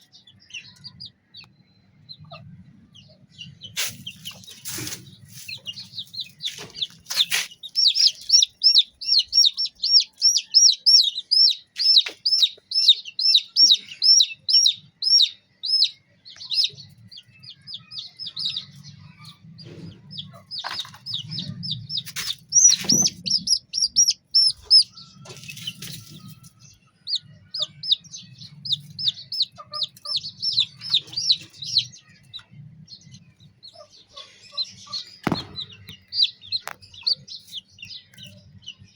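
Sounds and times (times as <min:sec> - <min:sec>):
chicks peeping: 0:00.0 - 0:38.9
sharp knocks: 0:35.2 - 0:36.2.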